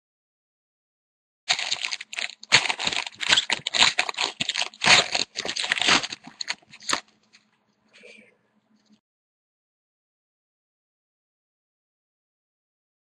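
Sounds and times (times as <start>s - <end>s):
foil wrapper tearing and crinkling: 1.5s - 7.2s.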